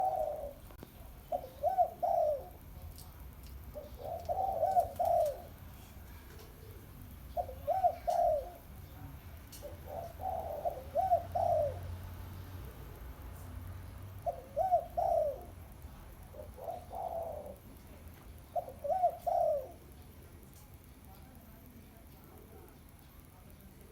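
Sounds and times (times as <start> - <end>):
dove cooing: 0.0 - 20.4
faint low hum: 0.0 - 23.9.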